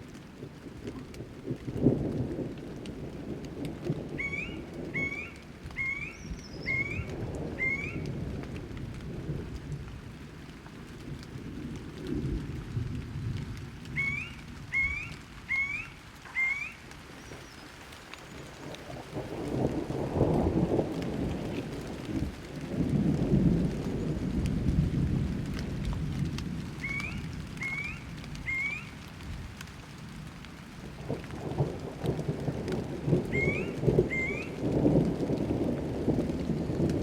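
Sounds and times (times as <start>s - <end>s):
rain: 0.0s - 37.0s
thunder rumbling: 0.4s - 37.0s
bird whistling rising notes: 4.2s - 8.0s, 14.0s - 17.6s, 26.8s - 28.9s, 33.3s - 34.6s.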